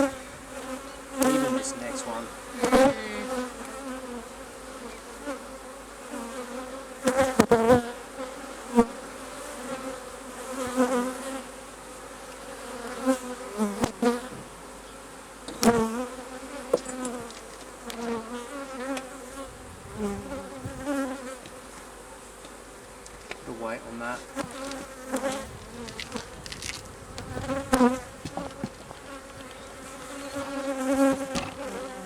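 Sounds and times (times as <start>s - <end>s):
bees buzzing: 0.0s - 32.0s
sharp knocks: 31.1s - 31.7s.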